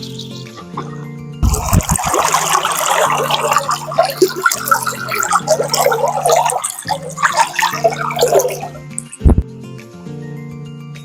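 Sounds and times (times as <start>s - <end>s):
background music low chords: 0.0s - 11.0s
water running and splashing: 1.4s - 9.4s.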